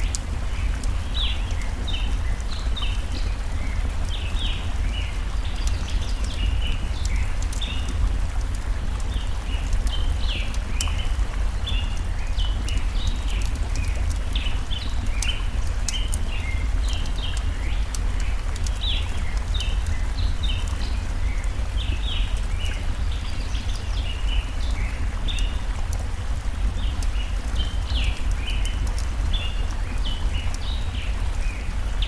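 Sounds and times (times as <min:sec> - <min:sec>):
campfire crackling: 0:00.0 - 0:32.0
stream water flowing: 0:00.0 - 0:32.0
birds chirping: 0:09.1 - 0:25.7.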